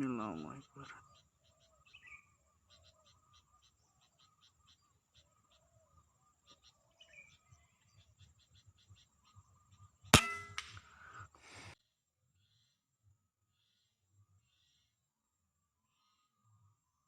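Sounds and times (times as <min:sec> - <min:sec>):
air rifle shot: 0:10.2 - 0:10.8.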